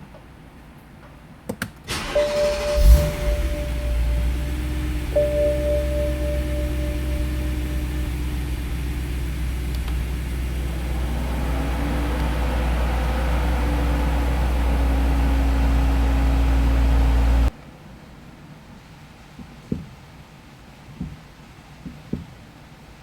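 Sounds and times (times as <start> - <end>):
car engine idling: 1.9 - 17.5.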